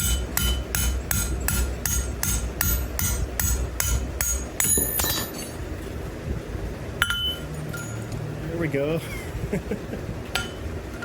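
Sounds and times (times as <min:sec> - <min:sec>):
hammer striking iron on anvil: 0:00.0 - 0:05.6, 0:07.0 - 0:08.0, 0:10.4 - 0:10.6
steady low rumble: 0:00.0 - 0:11.0
metal clink: 0:04.2 - 0:05.6, 0:07.0 - 0:08.1.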